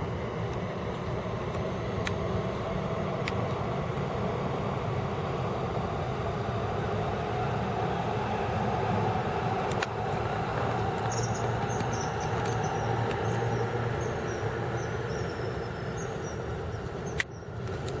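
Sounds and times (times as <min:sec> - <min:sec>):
distant traffic rumble: 0:00.0 - 0:18.0.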